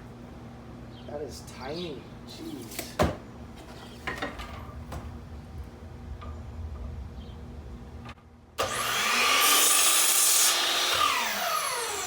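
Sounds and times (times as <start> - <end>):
miter saw motor whining: 8.6 - 12.0
saw blade cutting wood: 8.6 - 12.0.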